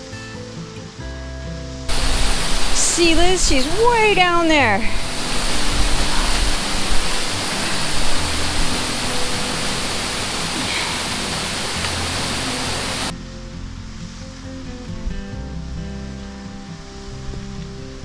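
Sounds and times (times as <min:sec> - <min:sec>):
waterfall rushing: 0:01.9 - 0:13.1.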